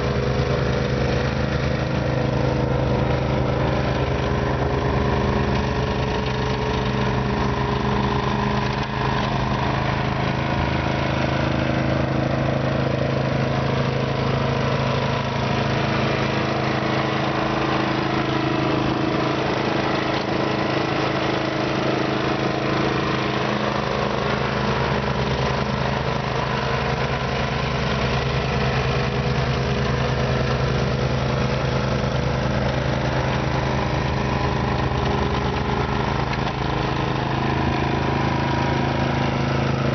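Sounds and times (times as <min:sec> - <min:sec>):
snow blower engine running: 0:00.0 - 0:39.9.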